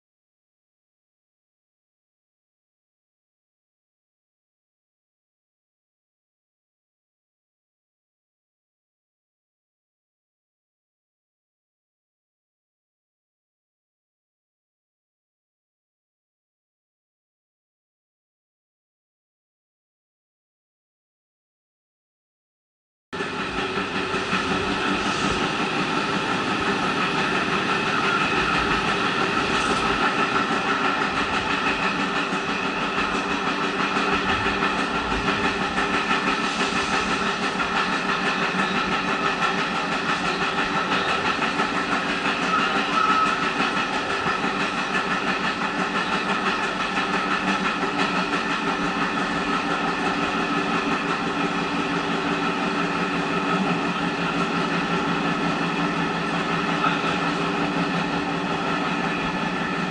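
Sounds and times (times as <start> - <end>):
train engine and wheels drone: 23.2 - 59.9.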